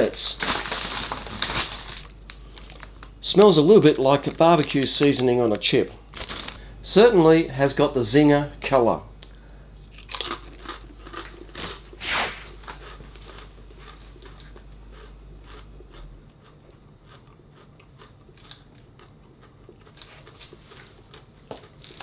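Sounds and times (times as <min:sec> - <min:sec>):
person crunching a potato chip: 0:09.9 - 0:22.0.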